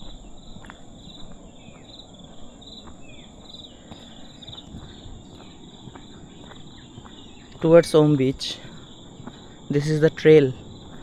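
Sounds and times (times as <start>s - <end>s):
faint footstep-like ticks: 0.0s - 1.9s, 2.8s - 7.8s, 8.6s - 9.6s
pulsing insect chirps: 0.0s - 11.0s.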